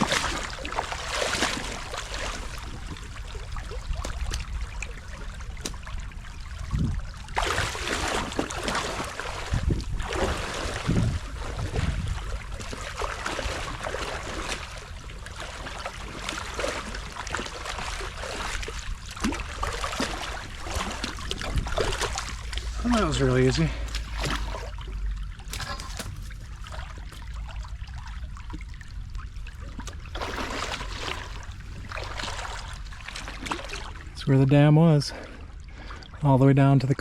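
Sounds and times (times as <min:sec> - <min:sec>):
creek water rushing: 0:19.7 - 0:27.6, 0:30.0 - 0:33.3.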